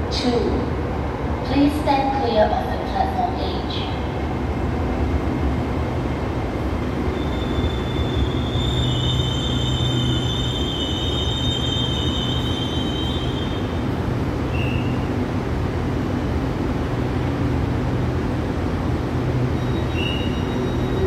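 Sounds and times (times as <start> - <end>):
electric train running hum: 0.0 - 21.0
wheel and brake squeal: 7.1 - 13.7, 14.5 - 15.1, 19.6 - 21.0.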